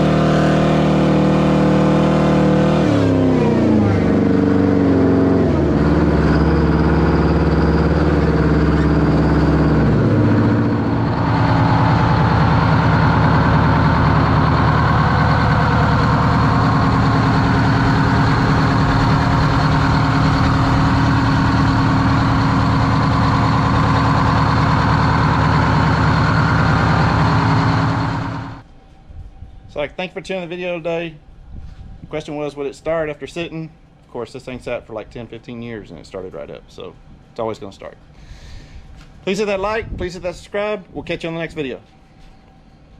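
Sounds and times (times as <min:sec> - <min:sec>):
diesel engine running: 0:00.0 - 0:28.7.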